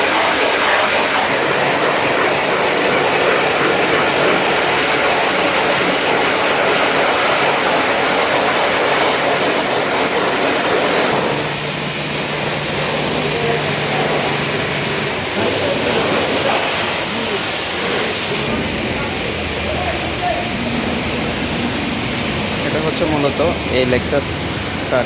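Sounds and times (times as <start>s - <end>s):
high-pressure water spray hissing: 0.0s - 25.0s
steady low hum: 10.0s - 25.0s.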